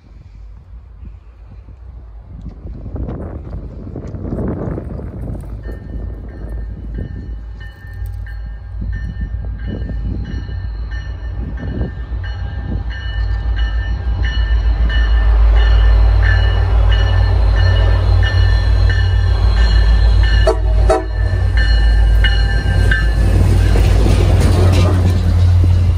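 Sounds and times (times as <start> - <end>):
diesel locomotive rumble: 0.0 - 25.9
train bell ringing: 5.3 - 25.9.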